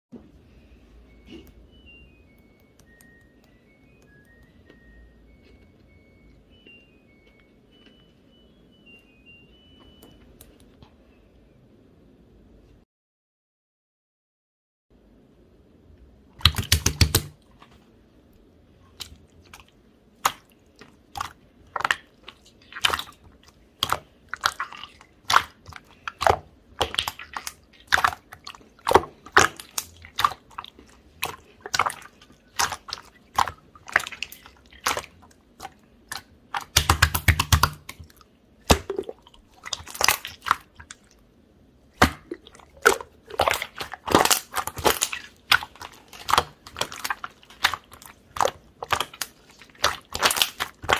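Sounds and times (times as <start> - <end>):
slime squeezed sticky pops: 36.1 - 38.0.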